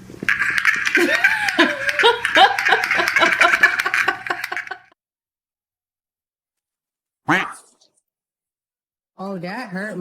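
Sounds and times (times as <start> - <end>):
person laughing: 0.9 - 5.0.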